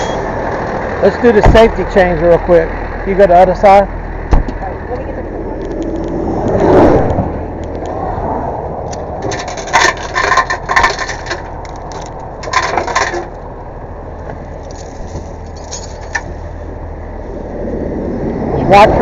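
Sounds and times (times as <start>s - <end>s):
truck engine running: 0.0s - 7.9s
chains clinking and rattling: 14.6s - 16.3s.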